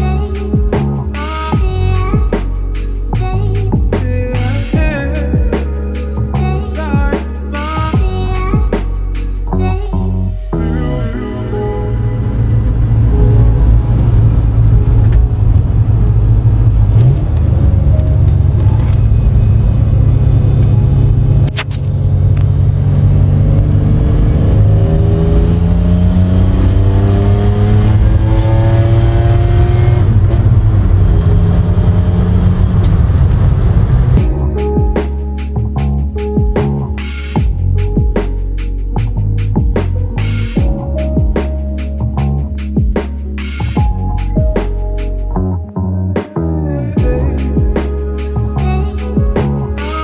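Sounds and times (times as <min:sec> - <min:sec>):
vehicle engine accelerating: 0:10.5 - 0:50.0.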